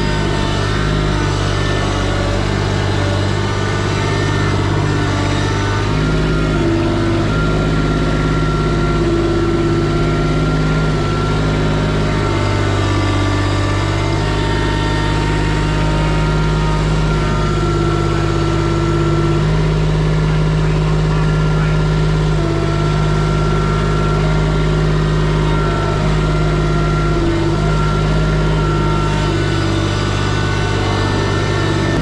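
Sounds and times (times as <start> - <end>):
machine engine idling: 27.7 - 32.0.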